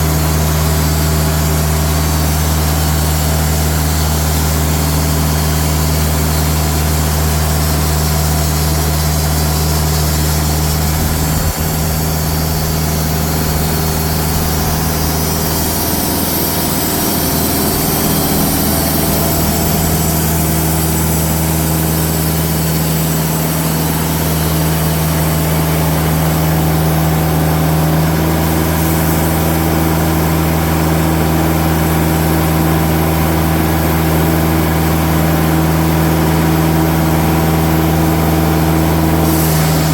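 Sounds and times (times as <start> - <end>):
band saw cutting log: 0.0 - 39.9
diesel engine running: 0.0 - 39.9.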